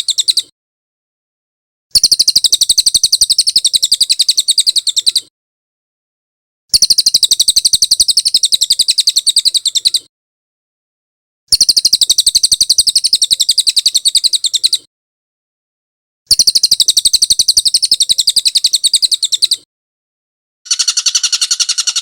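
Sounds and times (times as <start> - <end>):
bird trilling: 1.9 - 5.2, 16.3 - 19.6, 20.7 - 22.0.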